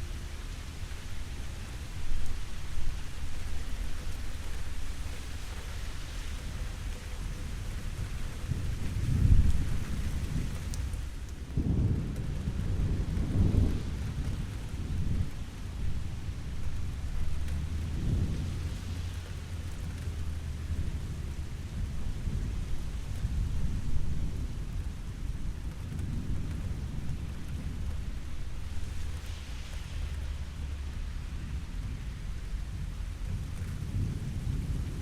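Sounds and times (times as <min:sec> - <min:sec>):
steady rain: 0:00.0 - 0:35.0
rumbling thunder: 0:08.0 - 0:35.0.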